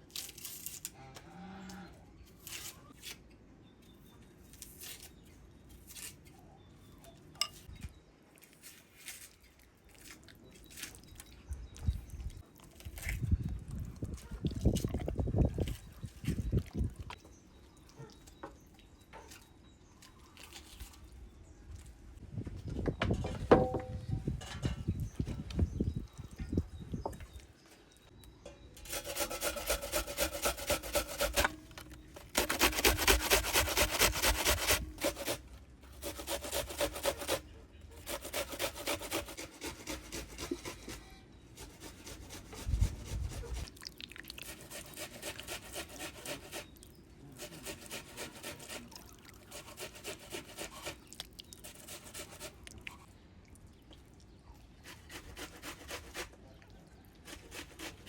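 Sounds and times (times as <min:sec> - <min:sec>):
rhythmic scraping strokes: 0:28.8 - 0:35.4.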